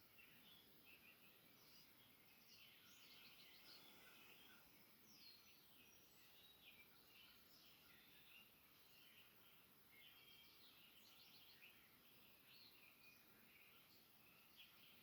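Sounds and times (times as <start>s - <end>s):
soft steady hiss: 0.0s - 15.0s
birds chirping and trilling: 0.1s - 15.0s.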